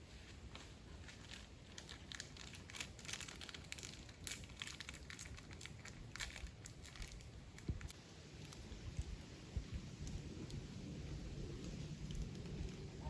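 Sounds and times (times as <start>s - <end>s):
dry material crinkling: 0.2s - 9.2s.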